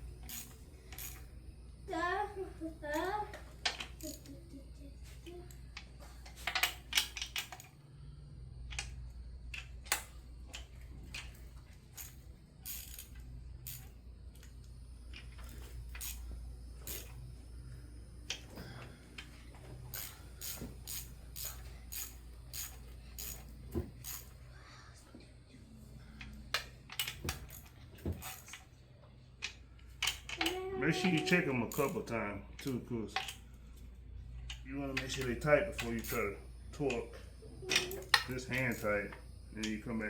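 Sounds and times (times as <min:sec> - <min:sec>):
steady low hum: 0:00.0 - 0:40.0
hand tools clinking on metal: 0:30.3 - 0:33.4.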